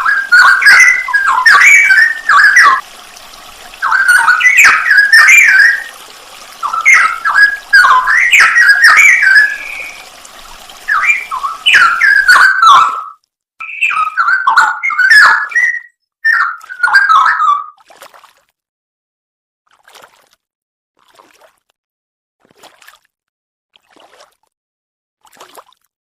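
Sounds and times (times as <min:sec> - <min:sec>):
bulbul singing whistled phrases: 0:00.0 - 0:02.8, 0:03.8 - 0:05.9, 0:06.6 - 0:10.1, 0:10.8 - 0:17.8.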